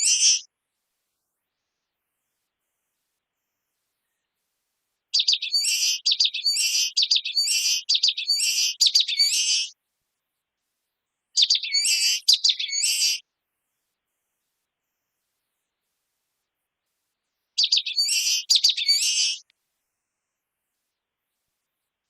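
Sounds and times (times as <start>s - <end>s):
small bird singing: 0.0s - 0.5s, 3.4s - 4.5s, 5.1s - 9.8s, 11.3s - 13.3s, 17.5s - 19.5s.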